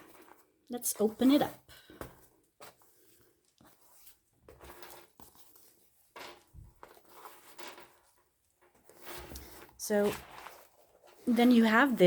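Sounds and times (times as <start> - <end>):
paper and card rustling: 8.8 - 12.0.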